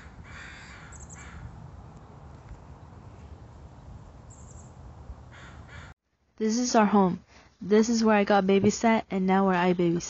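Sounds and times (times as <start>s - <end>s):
bird harsh calls: 0.0s - 1.5s, 3.8s - 5.9s
low outdoor rumble: 0.0s - 5.9s.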